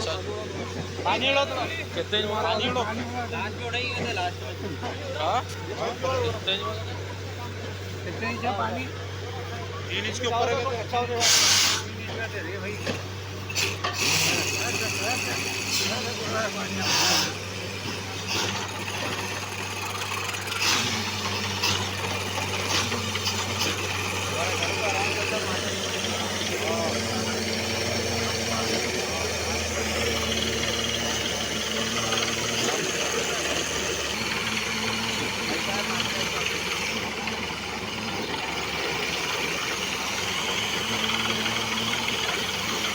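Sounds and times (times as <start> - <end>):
drilling rig engine humming: 0.0 - 42.9
short hissing bursts: 11.2 - 11.9, 16.8 - 24.4.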